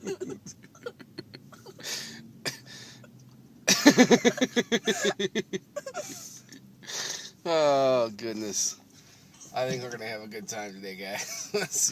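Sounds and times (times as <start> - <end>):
person laughing: 0.0 - 1.9, 3.7 - 6.4
person breathing: 1.8 - 3.0, 6.1 - 7.4.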